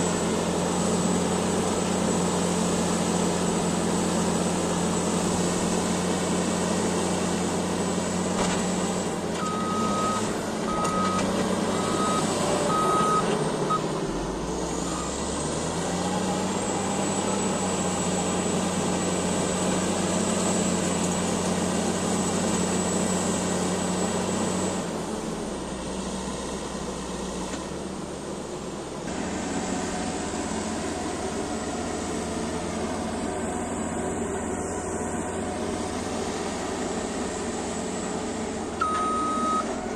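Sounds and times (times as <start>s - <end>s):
bulldozer diesel engine running: 0.0s - 39.9s
reverse alarm beeping: 9.4s - 11.2s, 11.8s - 13.8s, 38.8s - 39.7s.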